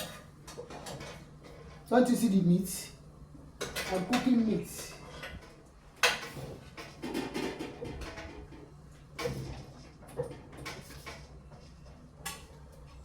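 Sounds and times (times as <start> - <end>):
cooking utensils and pots clinking: 5.0 - 13.0.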